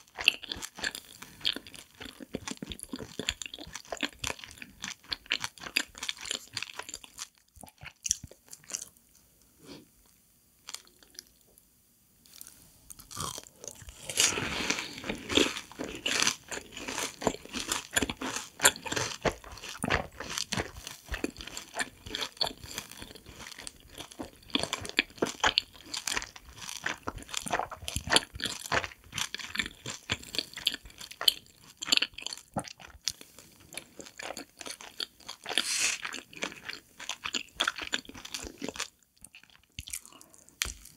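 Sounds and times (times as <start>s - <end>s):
crunchy chewing: 0.0s - 11.4s, 12.2s - 40.9s
crunching bite: 12.3s - 32.9s.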